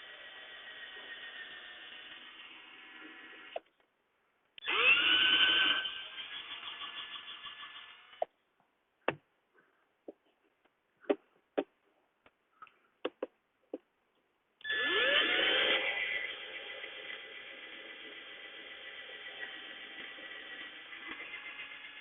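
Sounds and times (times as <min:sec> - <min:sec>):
power drill whine: 0:00.0 - 0:03.6, 0:04.6 - 0:08.3, 0:14.6 - 0:22.0.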